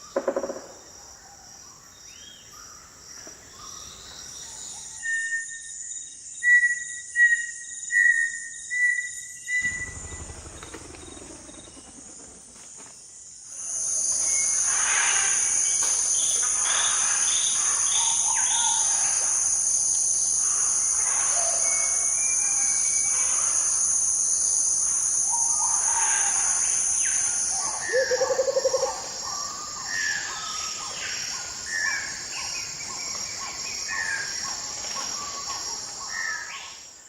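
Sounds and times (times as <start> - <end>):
insects trilling: 0.0 - 37.0
bird calls: 13.7 - 23.8.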